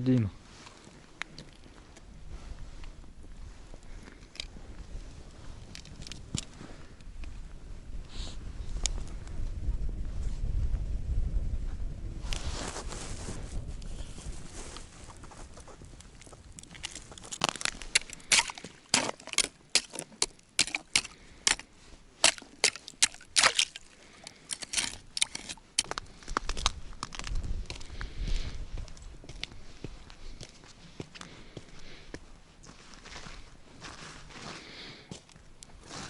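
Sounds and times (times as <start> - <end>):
wind rumble on microphone: 1.6 - 18.2, 25.8 - 30.5
footsteps crunching in snow: 12.2 - 21.0, 21.8 - 36.0.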